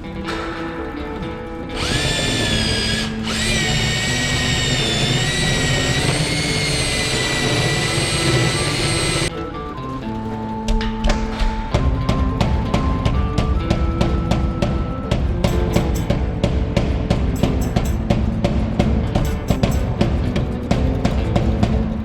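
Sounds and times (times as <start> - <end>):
background music: 0.0 - 22.0
power drill whining: 1.7 - 9.3.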